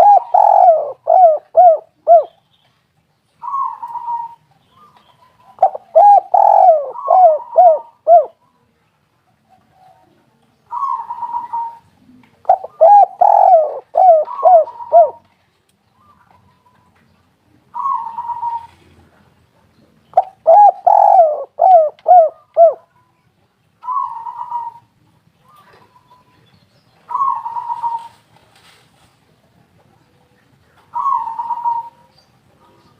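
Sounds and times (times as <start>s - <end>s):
dove cooing: 0.0s - 2.4s, 3.4s - 4.4s, 5.4s - 8.4s, 10.7s - 15.3s, 17.7s - 19.1s, 20.2s - 22.9s, 23.8s - 26.1s, 27.1s - 28.2s, 30.8s - 32.9s.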